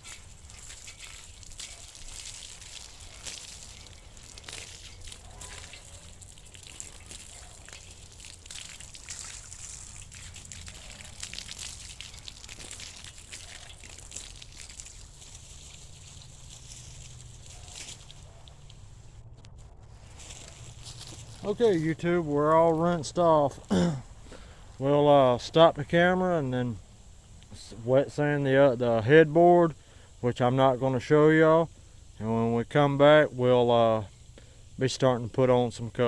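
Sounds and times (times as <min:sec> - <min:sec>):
hose spraying water on metal: 0:00.0 - 0:19.0, 0:19.9 - 0:34.2
water splashing and trickling: 0:00.0 - 0:19.2, 0:19.8 - 0:26.4.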